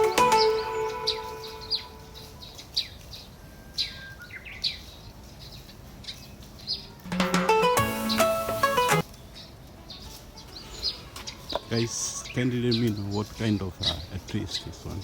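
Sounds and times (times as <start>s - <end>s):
background music: 0.0s - 2.3s, 7.1s - 9.0s
birds chirping: 0.0s - 15.0s.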